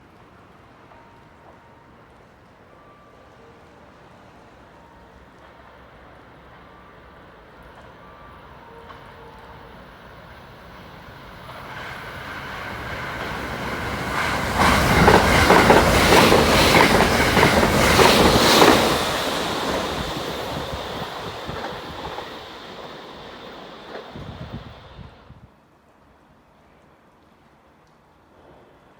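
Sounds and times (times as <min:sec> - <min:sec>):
train passing: 0:00.0 - 0:25.5
wheels clattering over rail joints: 0:11.4 - 0:24.8.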